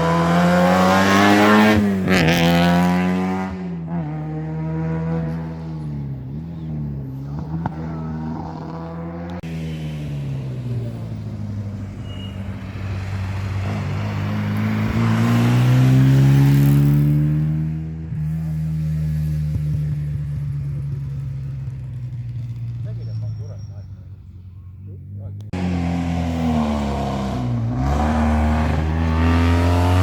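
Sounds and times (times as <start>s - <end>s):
rally car engine revving: 0.0s - 30.0s
rally car passing: 0.0s - 30.0s.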